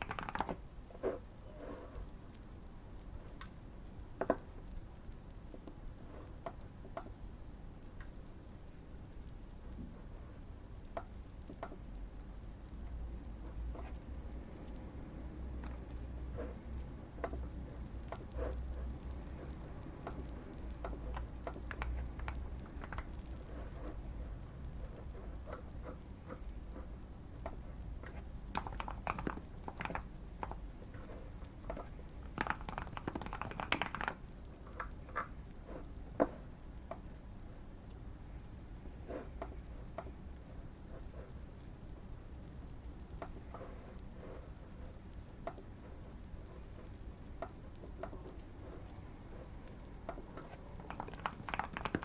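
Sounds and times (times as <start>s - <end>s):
mechanical keyboard typing: 0.0s - 0.7s, 27.4s - 30.7s, 31.7s - 35.3s, 50.1s - 52.0s
fireplace crackle: 0.0s - 52.0s
low steady hum: 0.0s - 52.0s.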